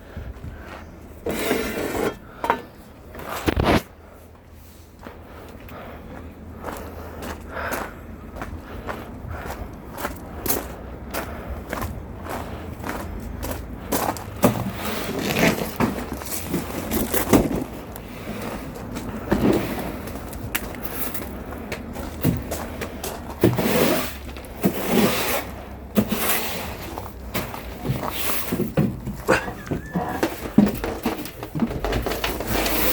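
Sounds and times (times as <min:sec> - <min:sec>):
knocks thuds and scrapes: 0:01.2 - 0:03.9, 0:14.3 - 0:21.4, 0:22.1 - 0:32.9
steady low rumble: 0:03.9 - 0:15.0.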